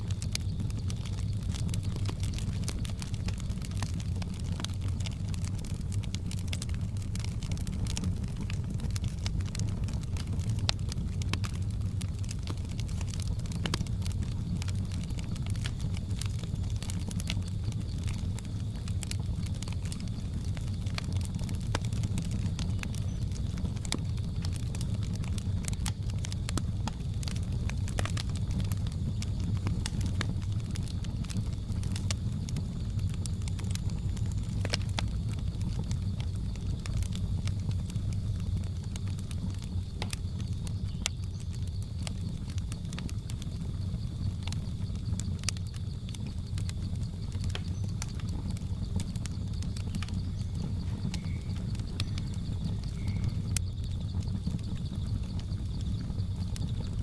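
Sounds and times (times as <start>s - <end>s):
wood fire crackling and popping: 0.0s - 57.0s
high insect drone: 42.7s - 56.9s.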